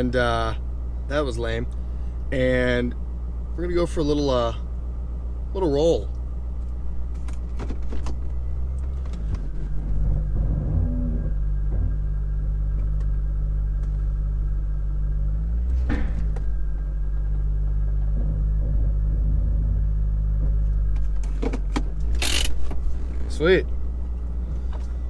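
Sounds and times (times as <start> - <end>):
car engine running low: 0.0 - 25.0
thump: 15.7 - 16.5.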